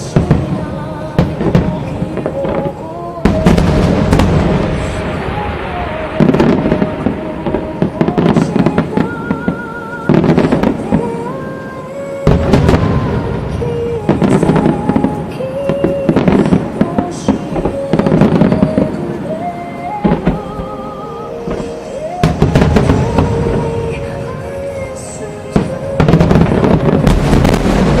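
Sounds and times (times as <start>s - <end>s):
fireworks bursting and crackling: 0.0s - 28.0s
music playing: 0.0s - 28.0s.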